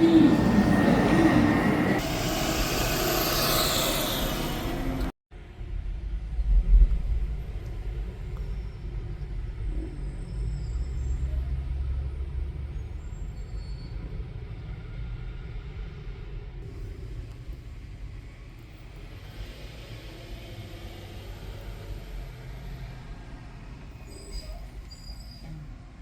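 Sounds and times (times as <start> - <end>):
garbage truck engine rumbling: 0.0 - 5.2.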